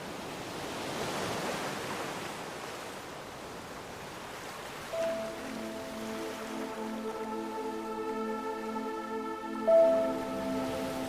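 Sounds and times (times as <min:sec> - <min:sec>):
rushing water: 0:00.0 - 0:11.0
music with sustained notes: 0:05.0 - 0:11.0.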